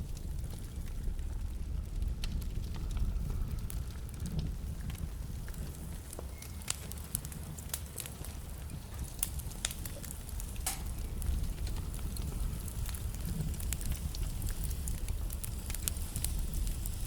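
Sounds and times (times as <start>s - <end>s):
wood fire crackling: 0.0s - 17.0s
low steady rumble: 9.2s - 17.0s.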